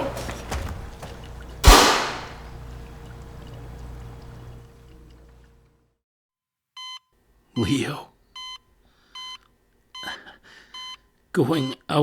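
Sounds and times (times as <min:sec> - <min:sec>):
sharp impact with ringing tail: 0:01.6 - 0:02.4.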